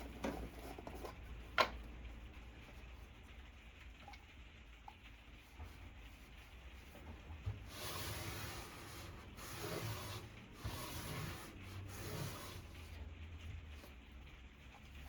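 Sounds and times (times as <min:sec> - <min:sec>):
rubbing on wood: 0:05.4 - 0:13.1.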